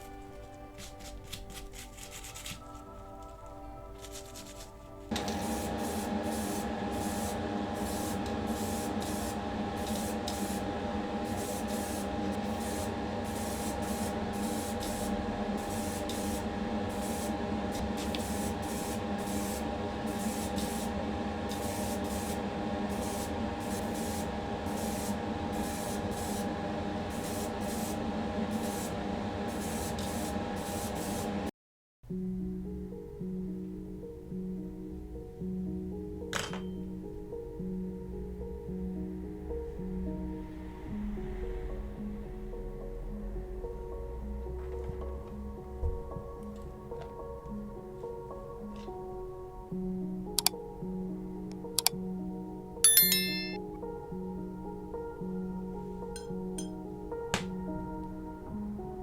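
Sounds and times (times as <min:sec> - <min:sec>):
paint spraying hiss: 0:04.0 - 0:26.5, 0:27.1 - 0:31.3.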